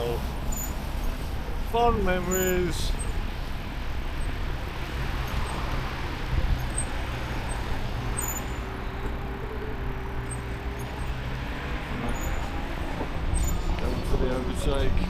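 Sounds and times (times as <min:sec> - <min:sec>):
road traffic passing: 0:00.0 - 0:15.0
wind rumble on microphone: 0:02.9 - 0:15.0.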